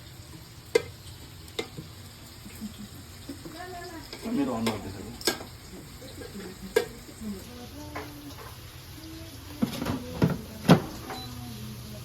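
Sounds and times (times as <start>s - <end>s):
faint voices: 3.4s - 12.0s.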